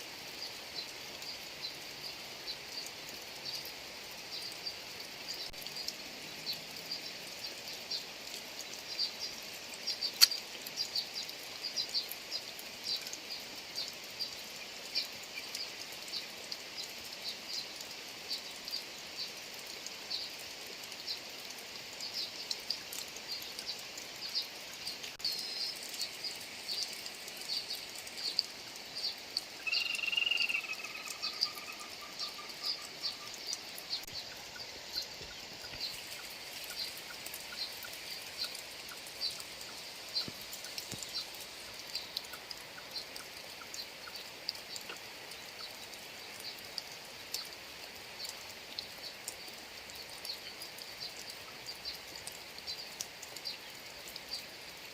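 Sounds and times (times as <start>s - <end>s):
rain falling: 0.0s - 54.9s
high animal chirps: 29.6s - 31.9s
long falling animal call: 29.6s - 32.6s.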